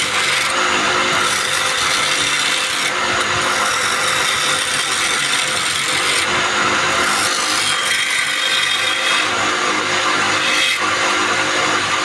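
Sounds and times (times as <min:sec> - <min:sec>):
lathe motor hum: 0:00.0 - 0:12.0
tool cutting spinning wood: 0:00.0 - 0:12.0.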